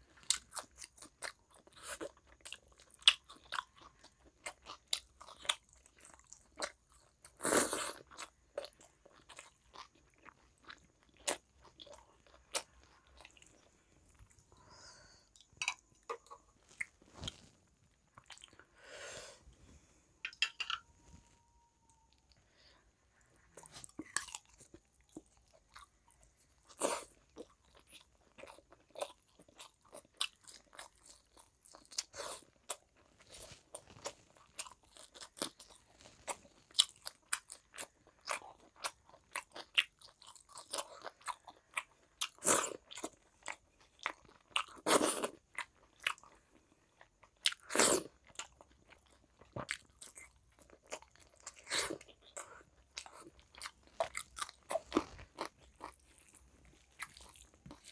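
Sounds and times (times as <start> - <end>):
chewing and mouth smacking: 15.4 - 18.7, 23.4 - 57.9.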